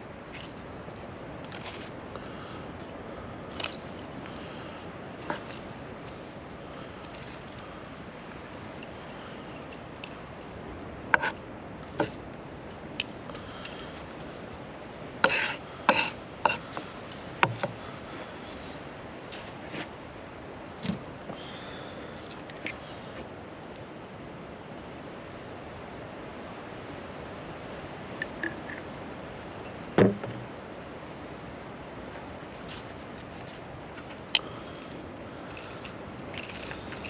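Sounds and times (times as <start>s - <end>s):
steady background noise: 0.0s - 37.0s.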